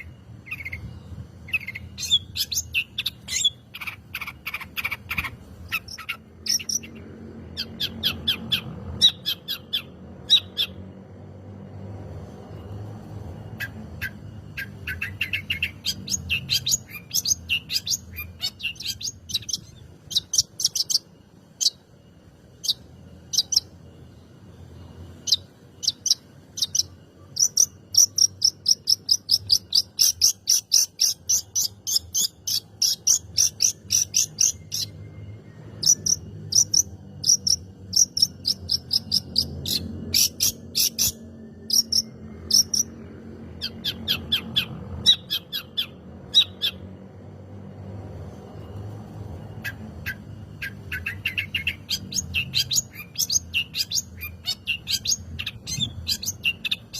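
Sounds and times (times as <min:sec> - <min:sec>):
shrike chirping: 0:00.0 - 0:10.9, 0:12.5 - 0:46.9.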